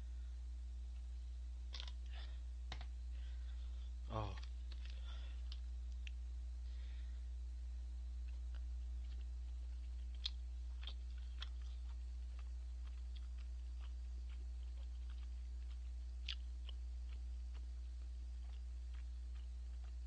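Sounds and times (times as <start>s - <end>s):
steady low hum: 0.0s - 20.0s
person chewing: 1.7s - 2.2s, 4.2s - 6.2s, 8.2s - 20.0s.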